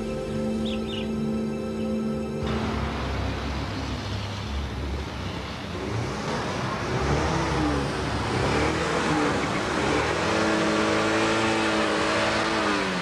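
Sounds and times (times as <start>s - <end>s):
car engine revving: 2.0s - 13.0s.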